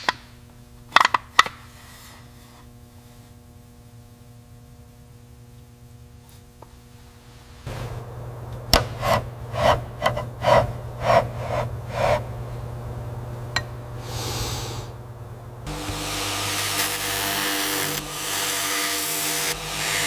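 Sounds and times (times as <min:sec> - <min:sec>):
steady machine hum: 0:00.0 - 0:20.0
rhythmic rubbing strokes: 0:08.8 - 0:12.3
short hiss: 0:14.0 - 0:15.0.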